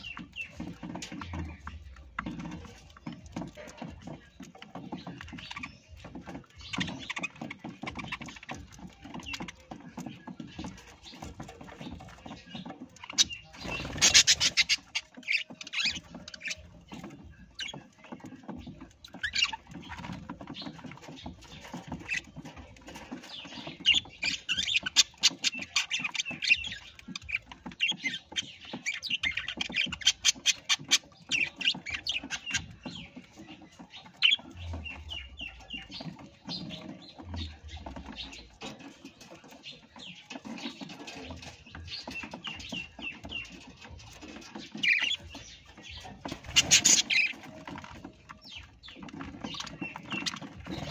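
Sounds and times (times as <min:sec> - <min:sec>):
parrots calling and chattering: 0:00.0 - 0:50.9.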